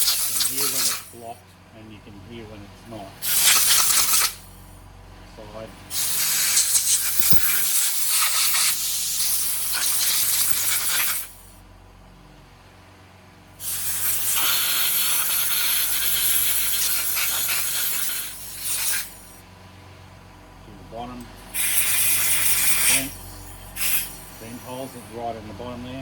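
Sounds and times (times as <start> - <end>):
compressed air blow gun hissing: 0.0 - 1.2, 3.2 - 4.6, 5.9 - 11.6, 13.6 - 19.4, 21.5 - 25.2.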